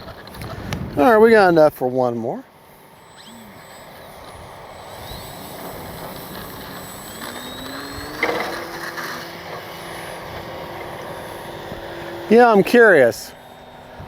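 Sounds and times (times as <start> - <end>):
wind noise on microphone: 0.0 - 1.4, 3.0 - 12.3
electric model plane motor whine: 0.0 - 14.0.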